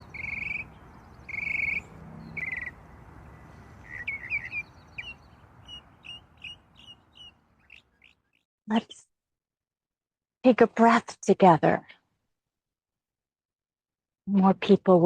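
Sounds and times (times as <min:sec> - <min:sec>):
bird trilling and chirping: 0:00.0 - 0:08.4.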